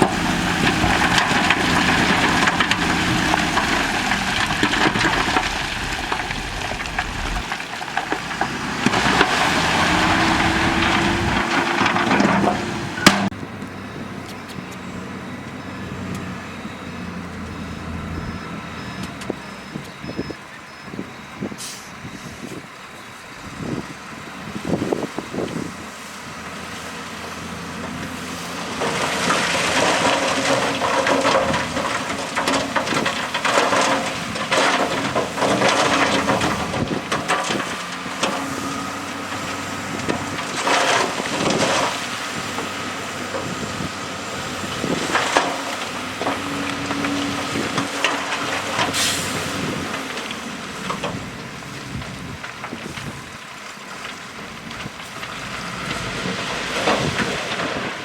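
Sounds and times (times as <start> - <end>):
diesel engines running: 0.0 - 58.0
rock and dirt crunching: 0.0 - 58.0.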